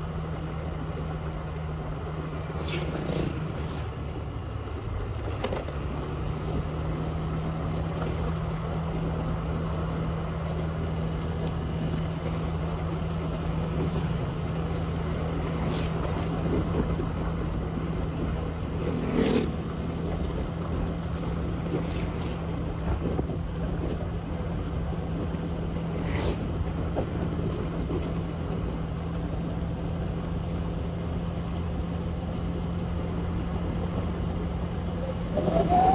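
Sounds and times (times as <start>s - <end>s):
wind noise on microphone: 13.2s - 28.9s, 34.8s - 35.9s.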